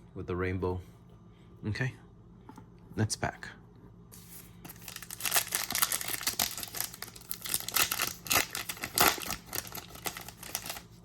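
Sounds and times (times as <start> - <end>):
wrapper tearing and crinkling: 4.8 - 10.9.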